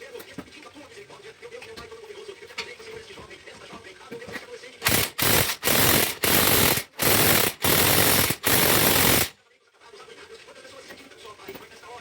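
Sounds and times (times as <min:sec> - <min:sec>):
impact wrench hammering: 0:04.8 - 0:09.3.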